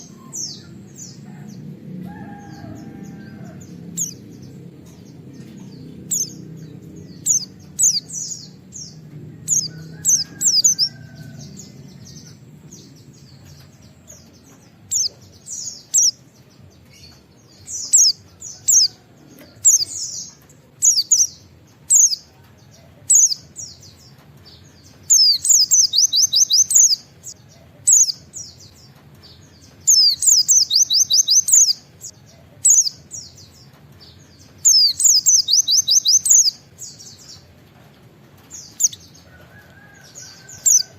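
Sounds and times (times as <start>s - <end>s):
bird singing high chirps: 25.0s - 27.0s, 29.6s - 31.9s, 34.7s - 37.2s.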